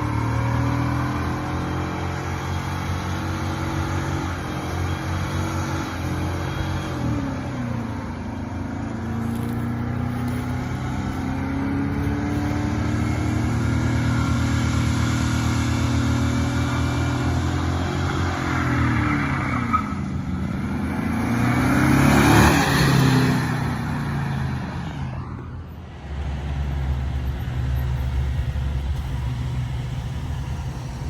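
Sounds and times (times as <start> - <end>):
van engine revving hard: 0.0 - 19.4, 20.0 - 25.1.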